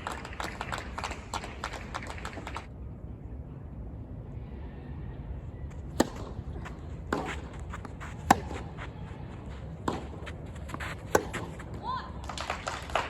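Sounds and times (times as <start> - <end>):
tennis balls bouncing: 5.7 - 13.0
tennis racket strikes: 8.2 - 8.7, 10.8 - 11.6.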